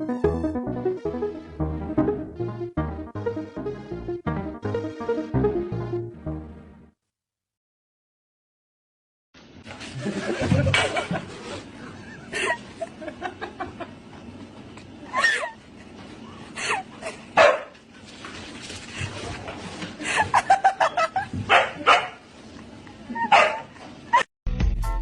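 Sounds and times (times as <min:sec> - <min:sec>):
dog barking: 0:17.4 - 0:17.8, 0:21.5 - 0:22.2, 0:23.3 - 0:23.7.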